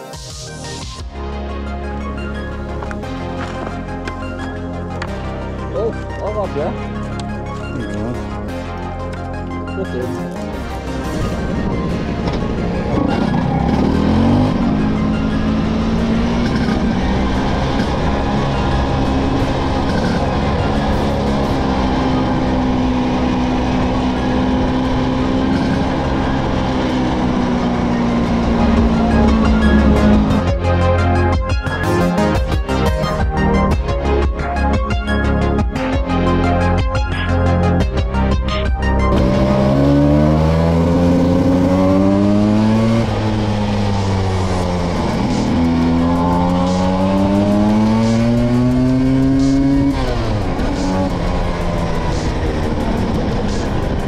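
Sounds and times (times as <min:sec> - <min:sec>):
two-stroke scooter engine running: 0:11.2 - 0:31.6, 0:39.1 - 0:54.0.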